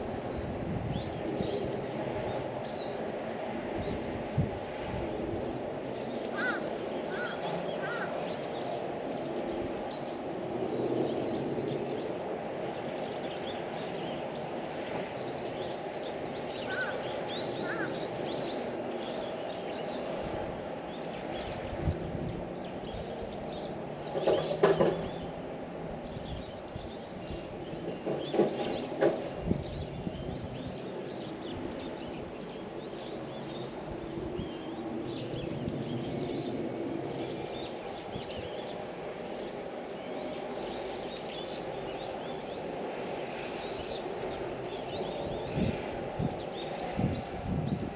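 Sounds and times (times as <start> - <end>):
bird calls: 6.0 - 8.9, 16.4 - 20.1.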